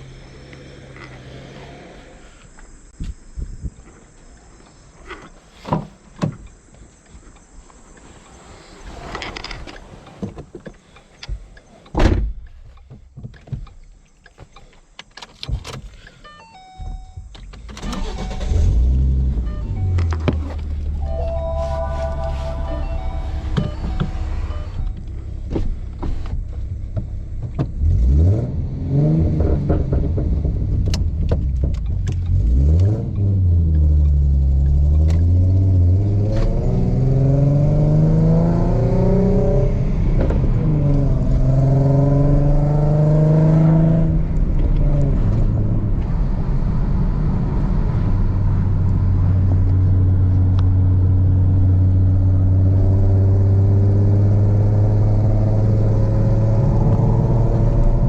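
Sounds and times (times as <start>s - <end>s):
car engine cruising: 0.0s - 11.9s, 17.2s - 58.0s
car engine revving: 17.9s - 25.4s, 27.7s - 58.0s.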